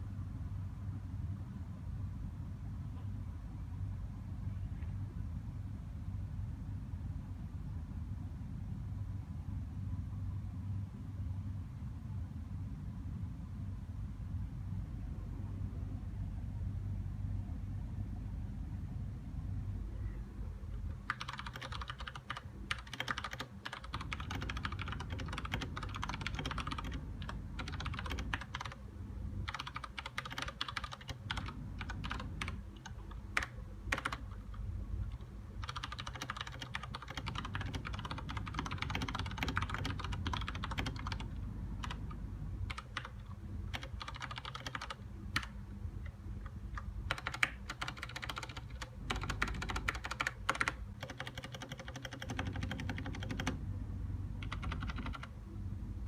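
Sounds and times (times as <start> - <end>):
steady low hum: 0.0 - 56.0
mechanical keyboard typing: 21.0 - 28.8, 29.4 - 45.6, 46.8 - 53.6, 54.4 - 55.3.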